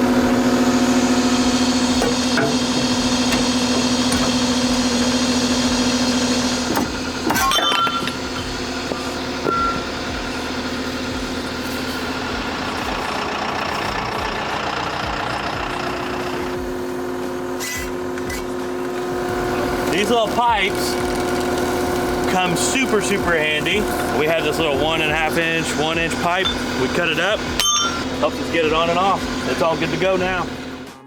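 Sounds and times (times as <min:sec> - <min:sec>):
skid steer engine running: 0:00.0 - 0:31.0
sharp metallic clanks: 0:06.7 - 0:10.1, 0:25.2 - 0:28.4.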